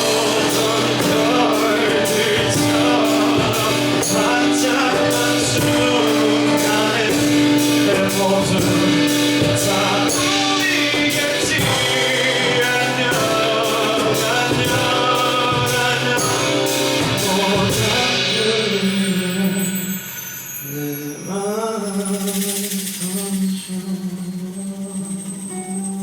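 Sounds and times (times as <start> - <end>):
instrumental accompaniment: 0.0 - 26.0
man singing: 0.0 - 26.0
percussion beat: 0.0 - 26.0.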